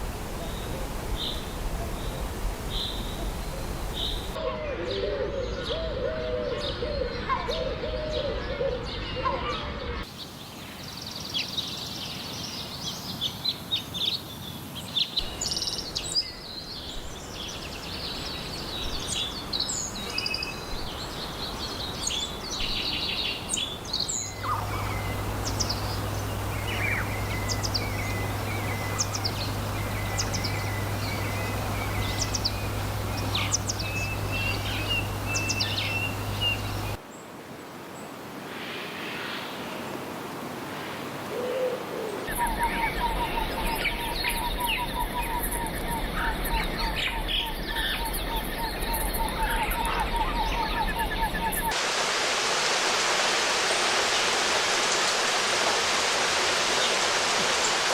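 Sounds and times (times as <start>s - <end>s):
small birds chirping and singing: 0.2s - 37.0s, 42.3s - 51.8s
steady low hum: 24.2s - 37.0s.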